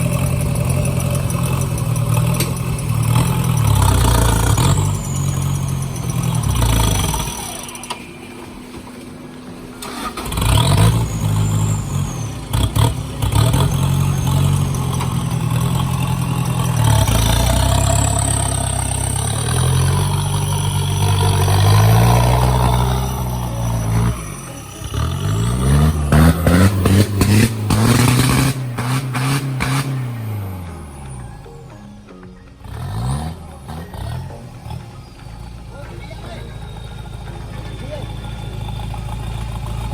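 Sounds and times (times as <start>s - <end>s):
knocks and clatters: 0.0s - 9.3s
off-road vehicle engine revving: 0.0s - 39.9s.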